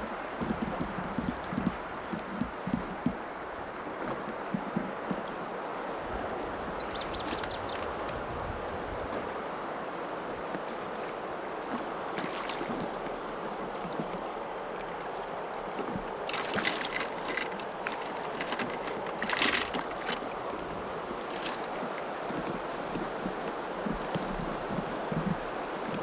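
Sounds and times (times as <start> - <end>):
water rushing: 0.0 - 26.0
wind: 0.0 - 26.0
crackly splashing: 6.7 - 26.0.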